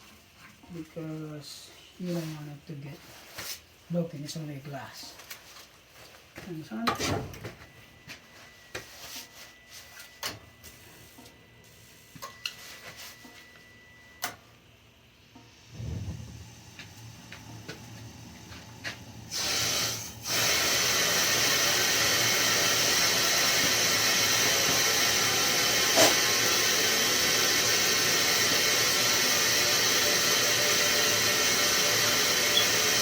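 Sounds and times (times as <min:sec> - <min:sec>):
steam hissing through valve: 0:19.3 - 0:33.0.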